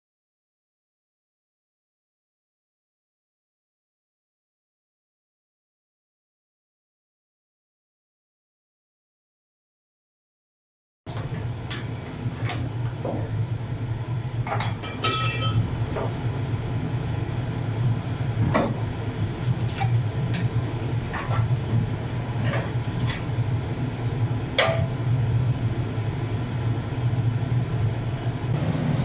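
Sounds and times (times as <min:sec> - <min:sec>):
steady low hum: 0:11.1 - 0:29.0
ringing metallic clink: 0:14.8 - 0:15.6.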